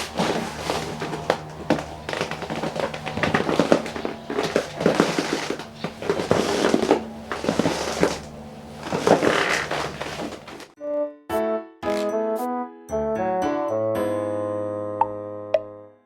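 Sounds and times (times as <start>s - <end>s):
camp cot creaking and clicking: 0.0s - 10.8s.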